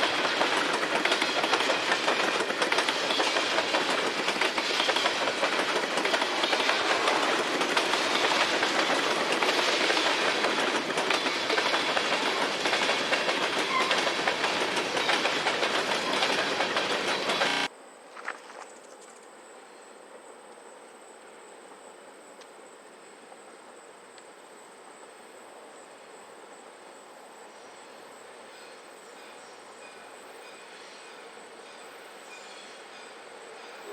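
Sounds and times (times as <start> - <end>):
freight train wheels clattering: 0.0 - 17.7.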